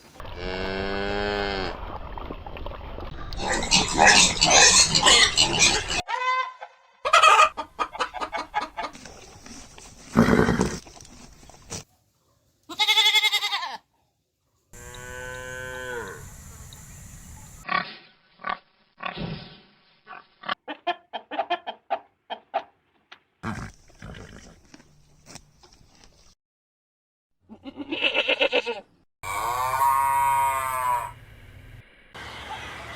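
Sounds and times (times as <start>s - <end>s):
farm animal calls: 3.4s - 9.0s, 27.6s - 31.2s
chicken clucking: 6.6s - 9.0s, 20.7s - 22.8s.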